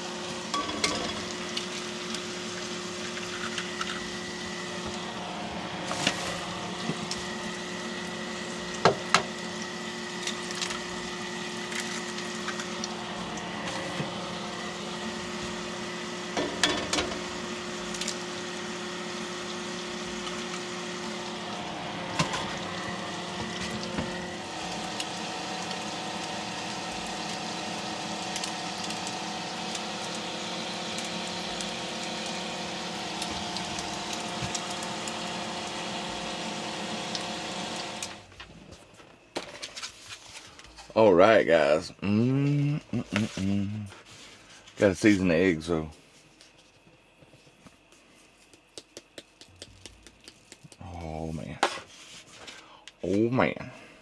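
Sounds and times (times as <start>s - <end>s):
food frying in a pan: 0.0s - 38.3s.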